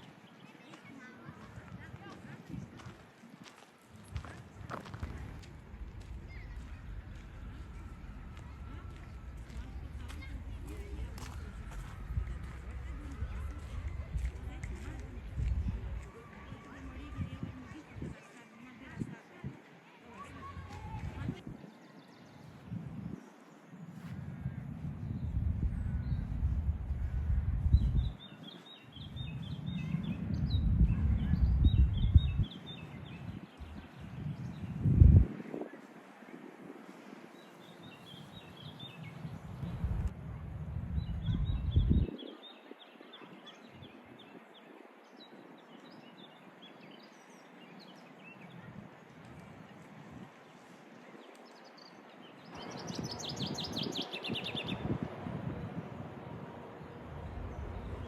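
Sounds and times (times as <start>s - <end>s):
street ambience: 0.0s - 58.0s
songbird singing: 4.1s - 35.7s, 37.3s - 40.1s, 40.8s - 58.0s
low rumble: 4.6s - 16.2s, 24.1s - 28.2s, 29.0s - 32.5s, 39.1s - 42.1s, 54.8s - 58.0s
small birds chirping: 20.0s - 35.7s, 37.4s - 40.1s, 40.9s - 55.7s.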